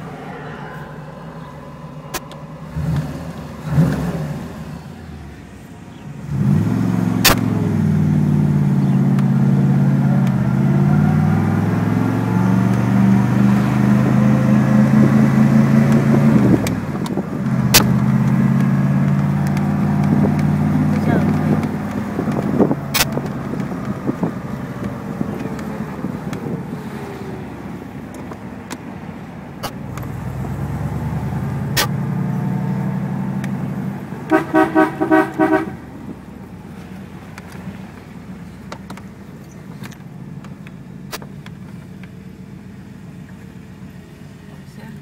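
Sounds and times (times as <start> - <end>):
car engine under throttle: 0.0 - 45.0
sharp clicks: 16.6 - 24.0.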